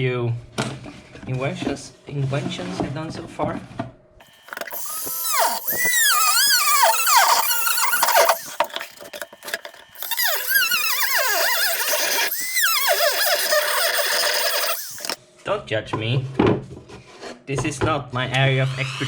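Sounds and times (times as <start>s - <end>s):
power tool squealing cutting wood: 4.2s - 15.2s, 18.7s - 19.0s.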